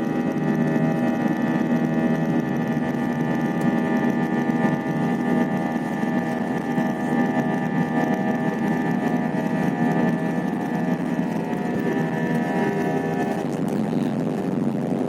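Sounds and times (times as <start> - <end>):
airliner engines during takeoff: 0.0 - 15.0.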